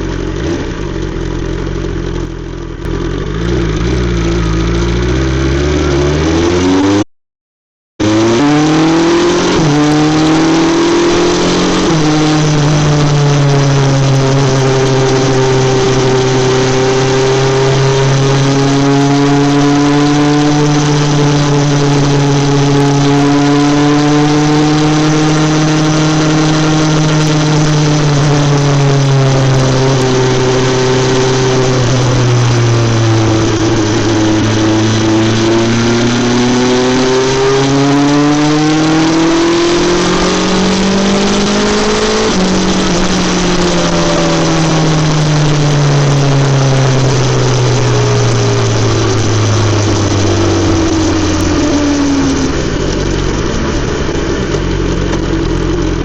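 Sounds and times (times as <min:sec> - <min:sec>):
motorcycle engine revving: 0:00.0 - 0:07.1, 0:08.0 - 0:56.0.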